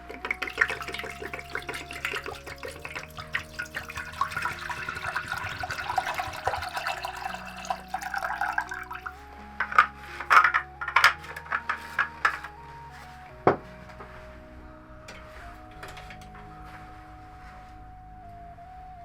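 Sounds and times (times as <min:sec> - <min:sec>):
water splashing and trickling: 0:00.0 - 0:12.6
soft background music: 0:00.0 - 0:19.0.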